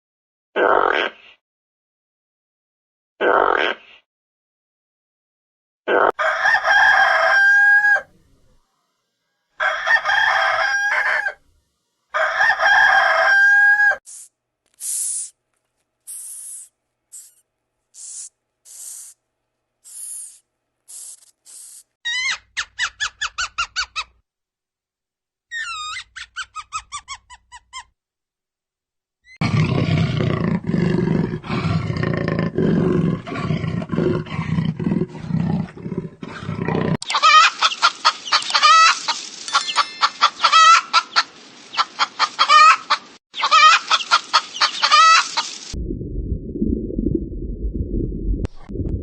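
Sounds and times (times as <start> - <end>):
chickens chirping and clucking: 37.0 - 45.7
muffled low rumble: 45.8 - 49.0.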